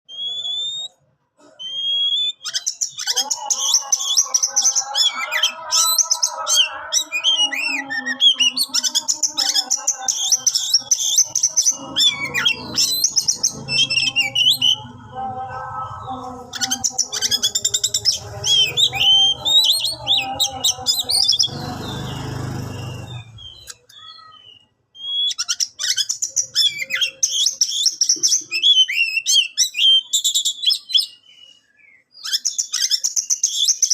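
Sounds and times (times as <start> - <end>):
bird singing whistles: 0.1 - 1.0, 1.6 - 6.0, 20.9 - 33.9.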